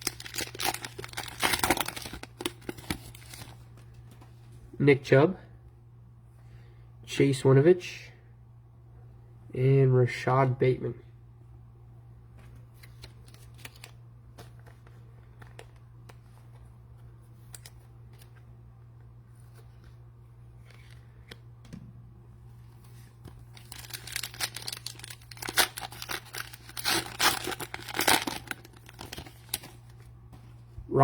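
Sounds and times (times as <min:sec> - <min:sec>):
plastic wrapper tearing and crinkling: 0:00.0 - 0:03.6, 0:23.3 - 0:30.1
steady low hum: 0:00.0 - 0:31.0.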